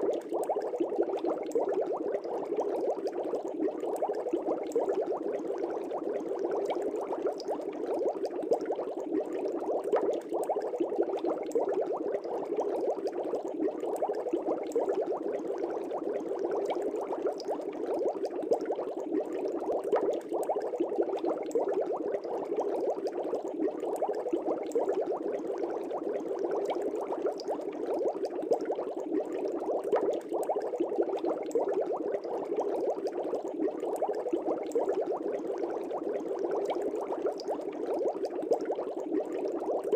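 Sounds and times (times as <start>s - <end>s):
fish tank bubbling: 0.0s - 39.9s.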